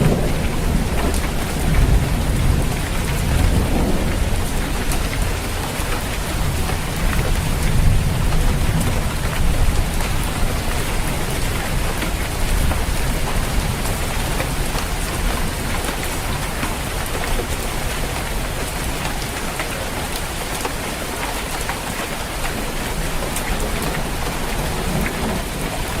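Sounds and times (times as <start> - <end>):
low thunder rumble: 0.0 - 19.0
heavy rain on a roof: 0.0 - 26.0.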